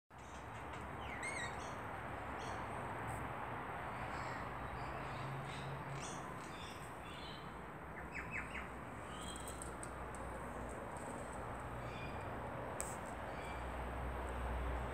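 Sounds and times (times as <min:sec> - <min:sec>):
birds chirping and calling: 0:00.2 - 0:02.8, 0:04.0 - 0:12.3
outdoor background hiss: 0:00.2 - 0:14.9.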